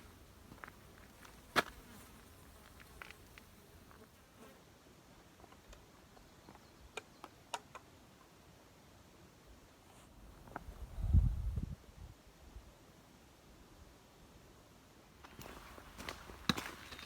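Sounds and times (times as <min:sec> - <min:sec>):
buzzing of flying insects: 0:00.0 - 0:04.6.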